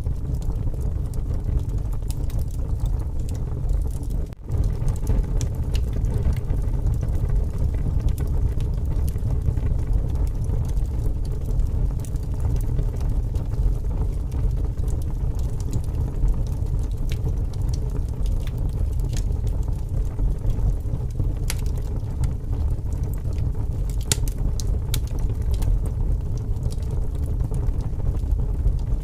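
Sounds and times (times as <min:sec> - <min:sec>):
gusting wind: 0:00.0 - 0:29.0
wood fire crackling and popping: 0:00.0 - 0:29.0.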